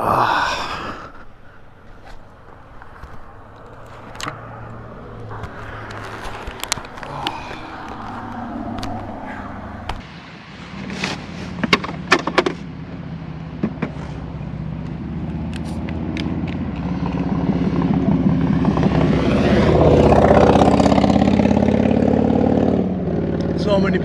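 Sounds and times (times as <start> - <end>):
vehicle engine running: 1.8 - 10.1.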